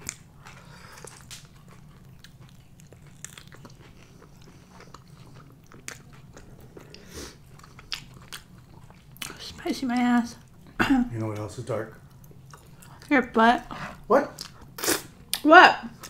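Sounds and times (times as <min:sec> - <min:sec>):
wet chewing clicks: 0:00.0 - 0:10.7.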